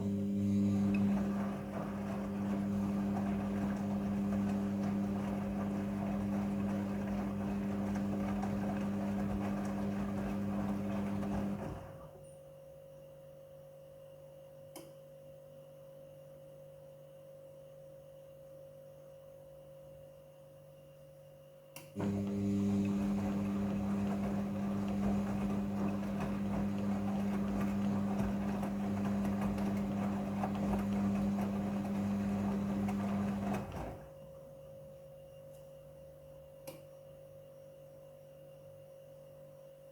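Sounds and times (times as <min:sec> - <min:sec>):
washing machine drum motor hum: 0:00.0 - 0:12.3, 0:22.0 - 0:34.6.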